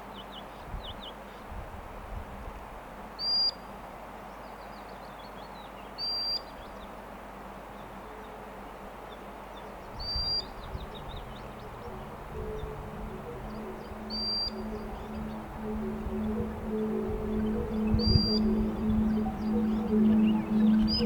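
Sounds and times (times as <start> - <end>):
sandpiper whistled calls: 10.0 - 21.0.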